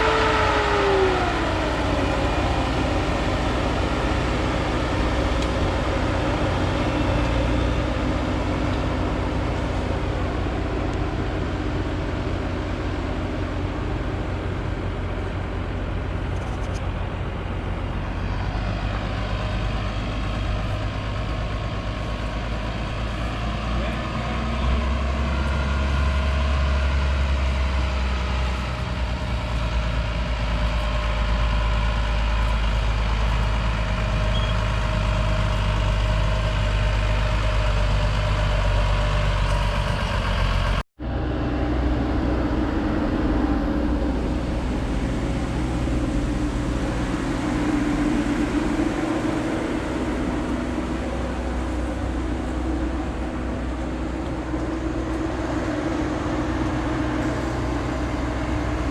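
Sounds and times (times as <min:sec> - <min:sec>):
crop sprayer engine humming: 0:00.0 - 0:38.4, 0:41.0 - 0:58.9.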